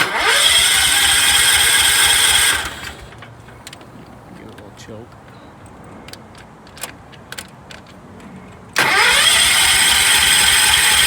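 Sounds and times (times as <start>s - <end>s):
small engine running loud: 0.0s - 3.2s, 8.8s - 11.0s.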